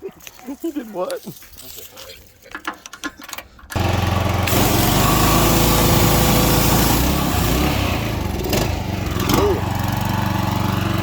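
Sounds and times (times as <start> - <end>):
small gasoline engine running: 3.7 - 11.0
loud hiss: 4.4 - 8.1.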